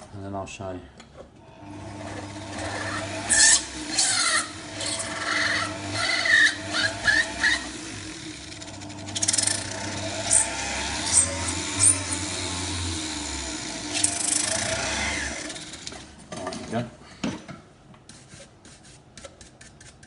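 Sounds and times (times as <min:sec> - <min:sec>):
power drill drilling: 0:01.5 - 0:16.0
drill bit squealing: 0:02.5 - 0:07.8, 0:08.5 - 0:15.8.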